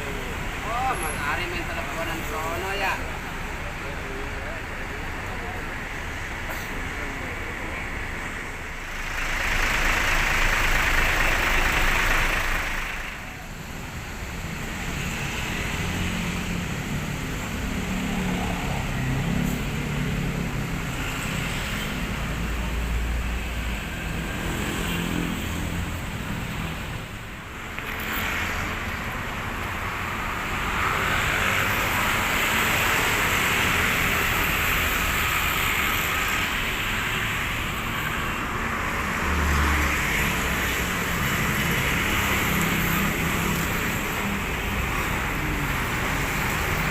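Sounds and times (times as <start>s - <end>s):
vehicles passing on road: 0.0s - 46.9s
engine humming low: 3.1s - 14.9s.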